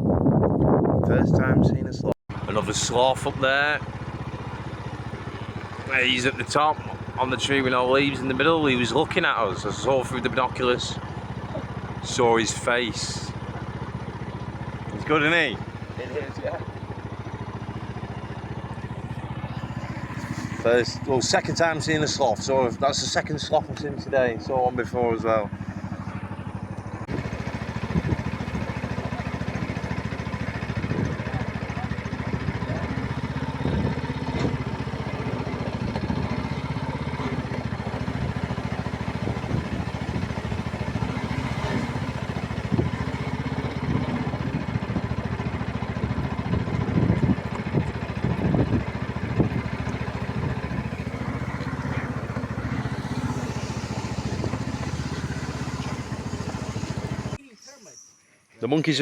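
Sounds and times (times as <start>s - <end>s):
motor engine running: 2.3s - 57.4s
faint voices: 30.4s - 33.2s.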